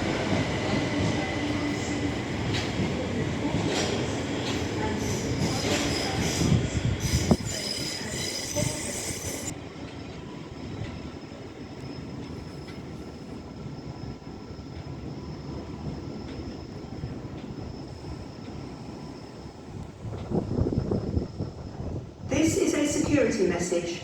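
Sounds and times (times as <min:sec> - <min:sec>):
train wheels squealing on rails: 0:00.0 - 0:24.0
train rumble with faint whine: 0:08.6 - 0:24.0.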